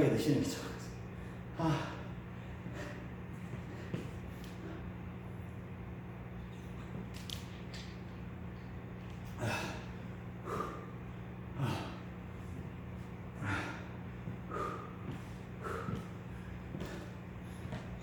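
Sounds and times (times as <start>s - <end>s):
steady low hum: 0.0s - 18.0s
man breathing hard: 1.1s - 5.0s, 9.3s - 18.0s.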